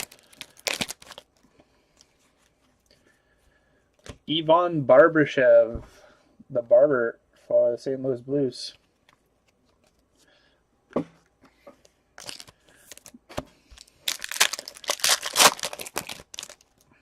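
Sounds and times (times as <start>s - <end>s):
foil wrapper tearing and crinkling: 0.0s - 1.3s, 12.2s - 13.2s, 13.8s - 16.8s.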